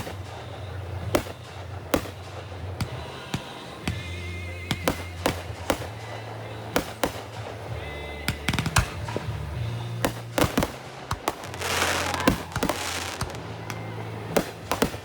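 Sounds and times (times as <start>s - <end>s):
fireworks bangs and pops: 0.0s - 15.0s
music playing: 0.0s - 15.0s.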